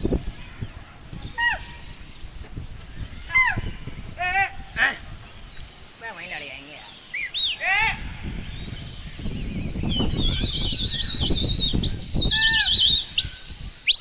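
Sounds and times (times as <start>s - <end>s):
wind rumble on microphone: 0.0s - 6.0s, 7.7s - 14.0s
shrill wavering whistled calls: 7.0s - 14.0s.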